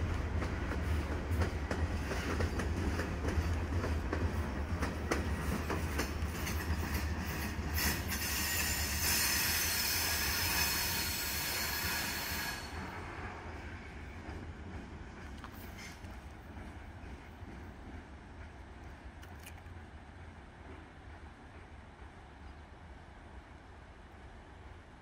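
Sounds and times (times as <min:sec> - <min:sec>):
wheels clicking over rail joints: 0:00.0 - 0:08.9
railroad cars rumbling: 0:00.0 - 0:25.0
wheels squealing on rail: 0:05.4 - 0:13.4.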